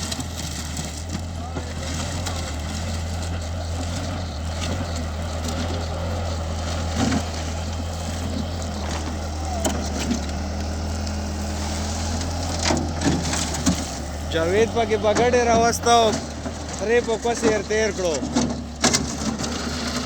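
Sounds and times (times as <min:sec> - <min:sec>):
loader engine running: 0:00.0 - 0:20.0.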